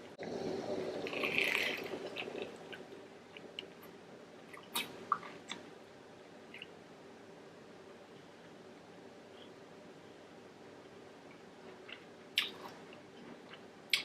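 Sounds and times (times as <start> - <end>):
wet mouth sounds: 11.9 - 12.8.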